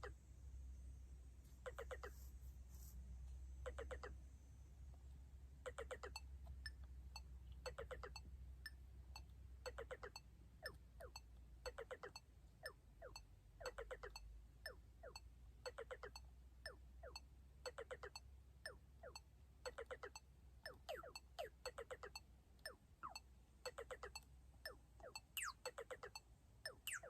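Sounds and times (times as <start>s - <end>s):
ticking beat: 5.7s - 27.0s
synthesizer beeping notes: 7.6s - 8.2s, 9.6s - 12.2s, 13.0s - 14.2s, 15.0s - 16.2s, 17.0s - 18.2s, 19.0s - 22.2s, 23.0s - 24.2s, 25.0s - 27.0s.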